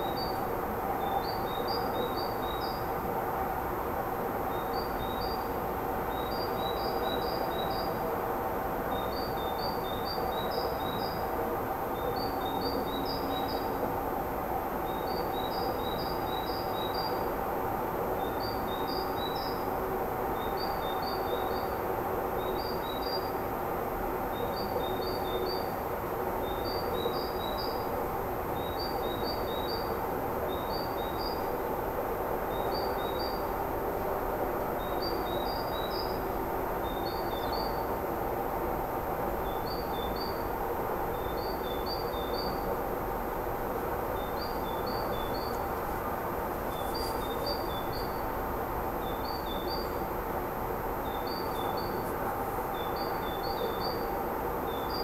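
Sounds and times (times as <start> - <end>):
faint hum: 0.0 - 55.0
songbird high chirps: 1.0 - 2.8, 44.2 - 45.7, 46.6 - 48.2, 49.0 - 50.0, 51.0 - 54.1.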